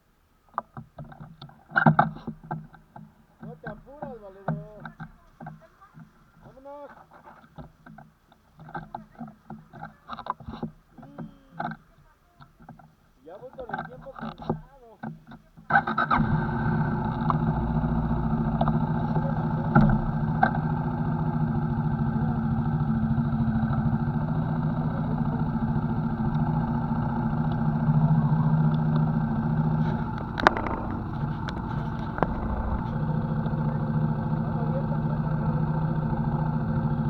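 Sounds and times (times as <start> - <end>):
motorcycle engine running: 16.1 - 37.0
brief knocks: 29.8 - 33.6.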